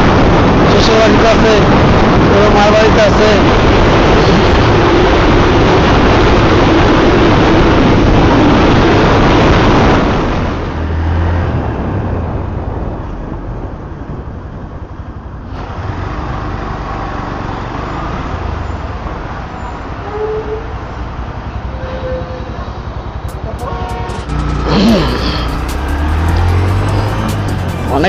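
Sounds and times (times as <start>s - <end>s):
wind and road noise: 0.0s - 28.0s
low engine hum: 22.2s - 28.0s.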